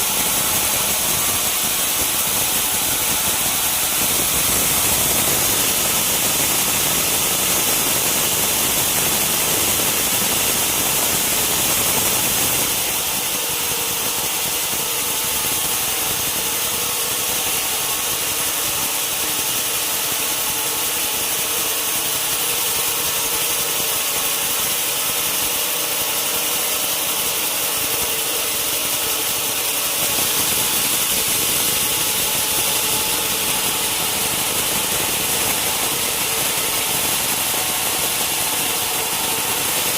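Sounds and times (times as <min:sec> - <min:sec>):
band saw cutting wood: 0:27.3 - 0:39.9.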